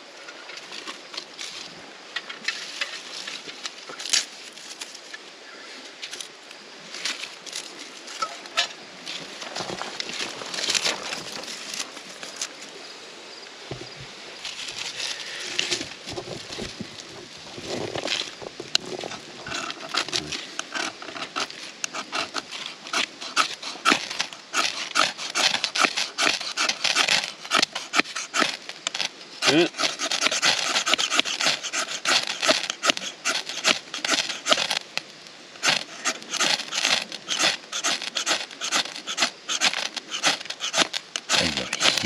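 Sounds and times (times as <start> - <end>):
wood rasping strokes: 17.6 - 35.0, 35.6 - 42.0.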